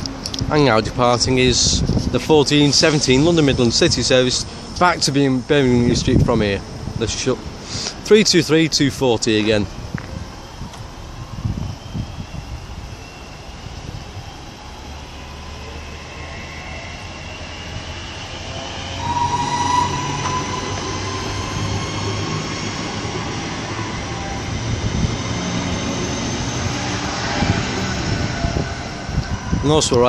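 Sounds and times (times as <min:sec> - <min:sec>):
electric train motors whining: 0:09.8 - 0:30.0
low rumble: 0:17.0 - 0:30.0.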